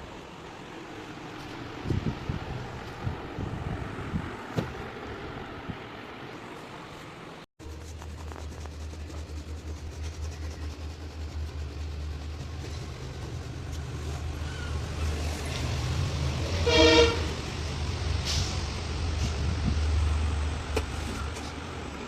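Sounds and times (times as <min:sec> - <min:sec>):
low rumble of road traffic: 0:00.0 - 0:22.0
vehicle horn honking: 0:16.6 - 0:17.4.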